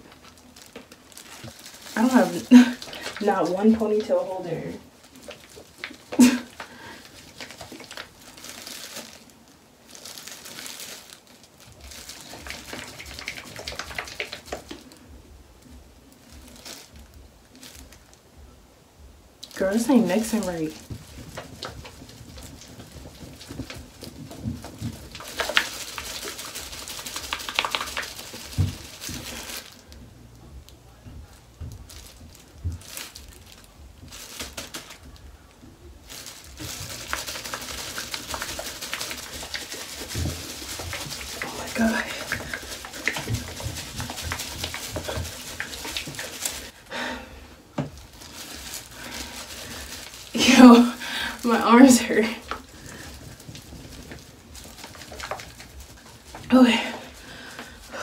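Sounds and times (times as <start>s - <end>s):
plastic bottle being shaken: 0.0s - 18.3s, 19.4s - 58.0s.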